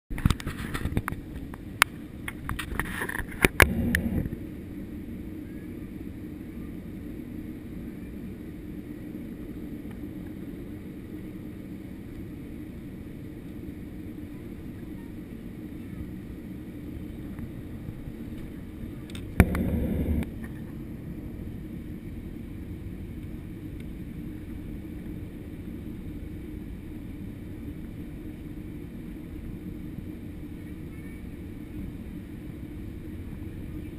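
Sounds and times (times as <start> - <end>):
airplane cabin drone: 0.1 - 33.9.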